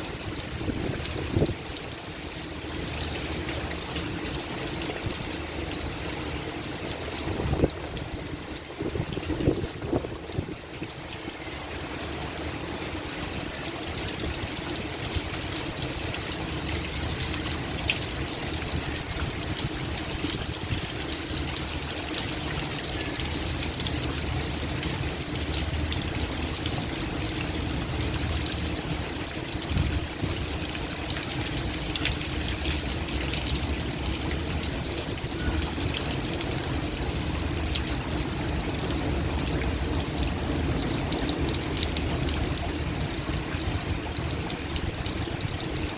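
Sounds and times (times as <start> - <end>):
heavy rain: 0.0 - 45.9.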